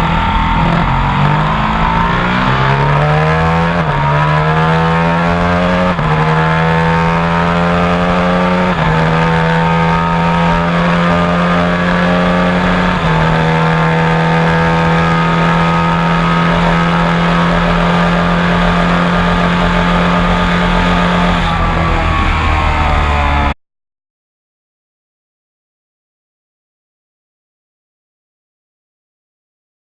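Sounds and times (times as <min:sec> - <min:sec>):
motorcycle engine accelerating hard: 0:00.0 - 0:23.6.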